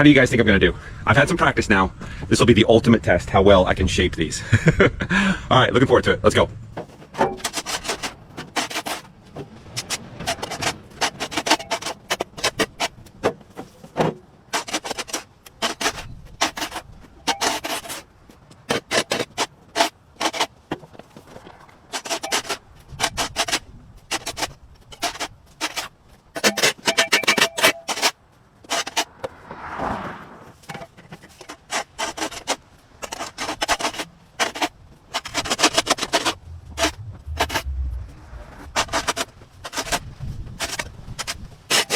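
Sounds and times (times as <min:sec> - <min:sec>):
shovel scraping on concrete: 0:06.9 - 0:29.4, 0:30.4 - 0:37.7, 0:38.6 - 0:41.9.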